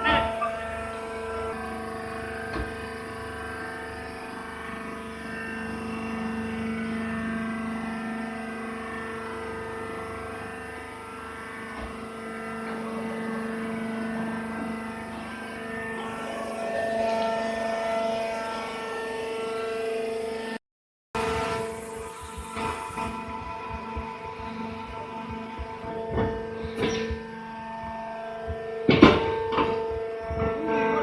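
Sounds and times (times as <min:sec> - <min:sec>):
baler mechanical drone: 0:00.0 - 0:20.6, 0:21.2 - 0:31.0.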